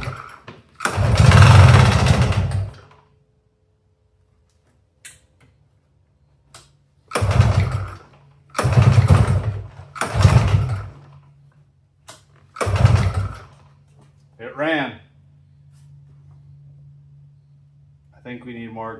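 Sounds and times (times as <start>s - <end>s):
two-stroke engine starting: 0.0s - 3.1s, 7.1s - 11.3s, 12.4s - 13.8s.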